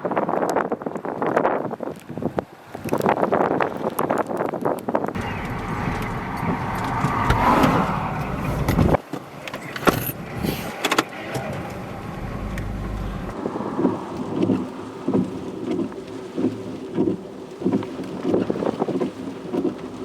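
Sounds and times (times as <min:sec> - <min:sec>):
strong wind rushing: 0:04.9 - 0:09.0, 0:09.9 - 0:15.6
gusting wind pulses: 0:05.2 - 0:15.7.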